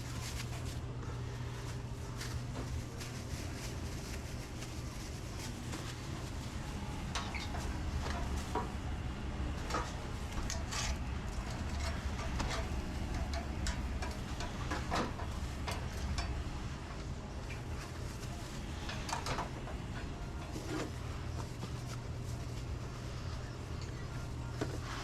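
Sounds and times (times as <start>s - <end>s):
kitchen equipment hum: 0.0s - 25.0s
clatter of utensils and dishes: 7.0s - 8.9s, 9.6s - 16.4s, 17.5s - 21.0s.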